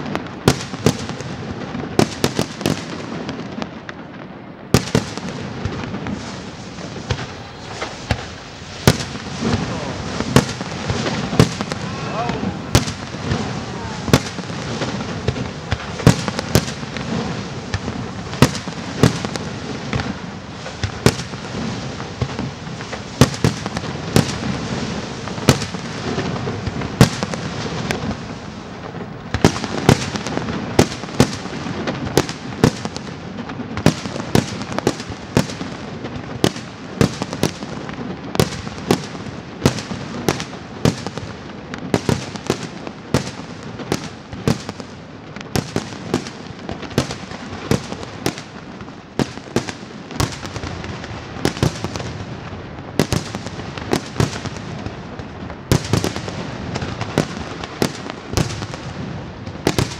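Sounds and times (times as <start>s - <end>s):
fireworks crackling: 0.0s - 59.9s
firework shells bursting: 4.8s - 32.9s.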